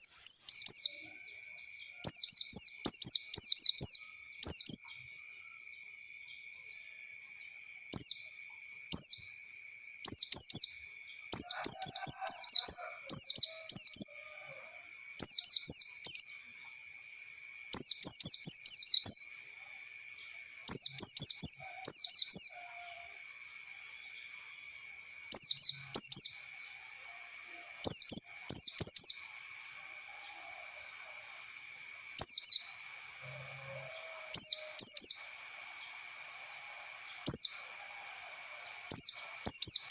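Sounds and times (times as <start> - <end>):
bird high rapid chirping: 2.1 - 5.0, 11.4 - 14.2, 20.7 - 22.7, 34.4 - 35.4, 37.2 - 37.7, 38.9 - 39.9
faint steady high whine: 12.8 - 39.9.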